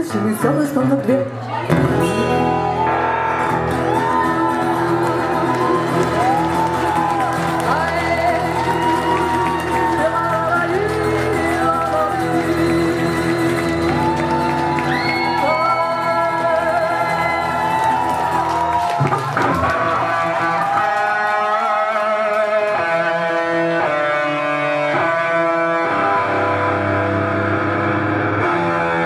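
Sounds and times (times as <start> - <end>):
live rock band instrumental: 1.6 - 20.9.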